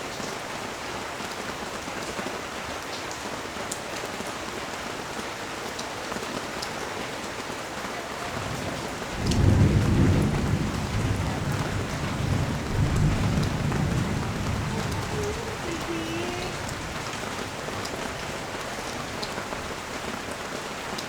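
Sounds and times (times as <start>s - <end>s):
rain falling on street: 0.0s - 21.0s
low rumble of thunder: 8.3s - 20.1s
sharp drips: 8.3s - 21.0s.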